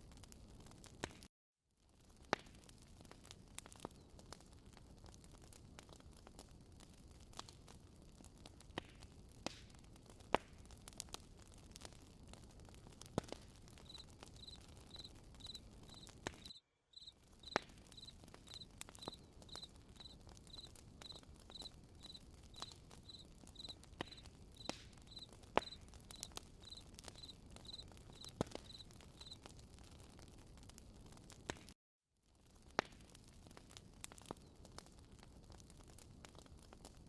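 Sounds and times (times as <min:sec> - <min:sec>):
campfire crackling: 0:00.0 - 0:01.2, 0:01.8 - 0:37.0
cricket chirping: 0:13.8 - 0:23.8, 0:24.6 - 0:29.4.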